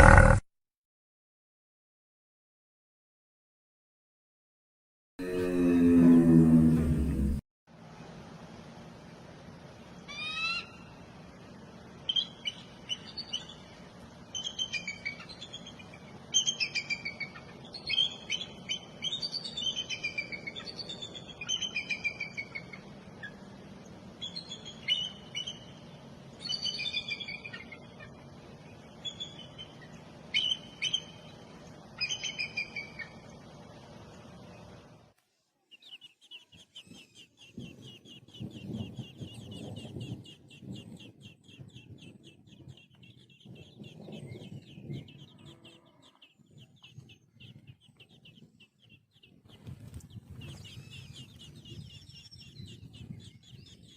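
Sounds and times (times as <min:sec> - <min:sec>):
steady low hum: 0:06.6 - 0:53.9
low bird calls: 0:12.1 - 0:33.5, 0:35.7 - 0:53.9.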